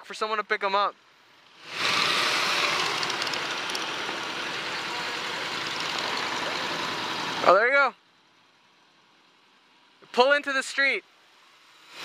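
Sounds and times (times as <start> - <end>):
wind and road noise: 0.7 - 10.3
motorcycle engine: 1.2 - 10.0.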